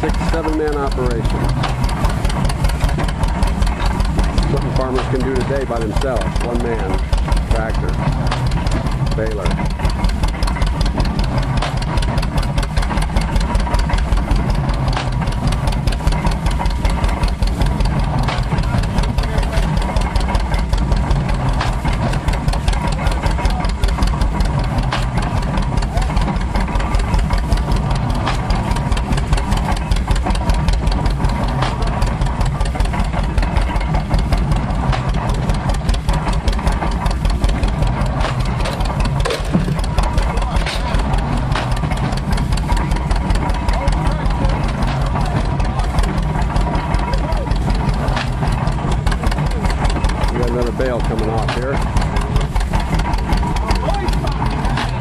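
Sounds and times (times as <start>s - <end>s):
tractor engine chugging: 0.0s - 55.0s.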